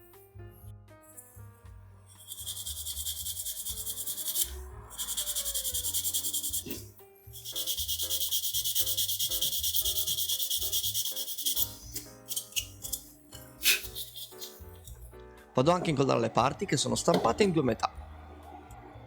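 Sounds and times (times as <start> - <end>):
sanding small plastic part: 2.1 - 15.0.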